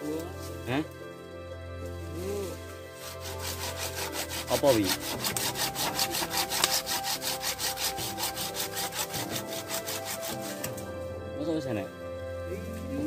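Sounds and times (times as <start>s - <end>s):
hand saw cutting wood: 3.0s - 11.0s.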